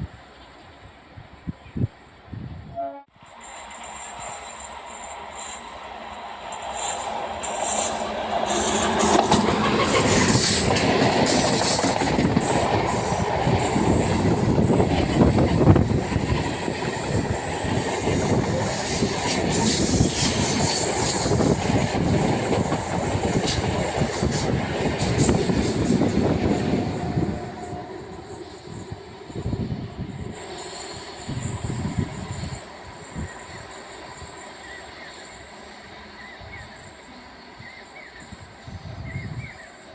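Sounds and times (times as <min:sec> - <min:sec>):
train wheels clattering: 0:06.4 - 0:35.6.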